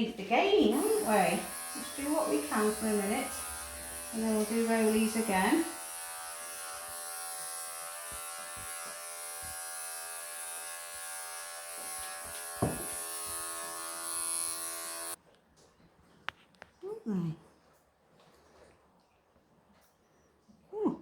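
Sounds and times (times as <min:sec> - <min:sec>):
electric clippers buzzing: 0:00.6 - 0:15.2.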